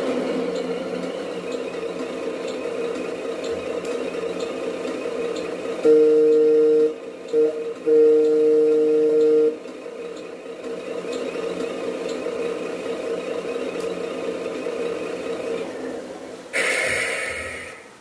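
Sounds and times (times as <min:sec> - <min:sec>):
two-tone air horn: 0:05.8 - 0:09.6.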